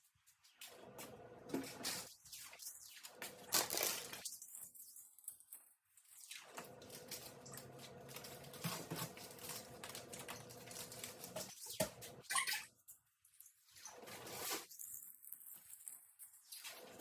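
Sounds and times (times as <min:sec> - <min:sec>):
packages being handled: 0:03.3 - 0:05.7, 0:06.7 - 0:12.2.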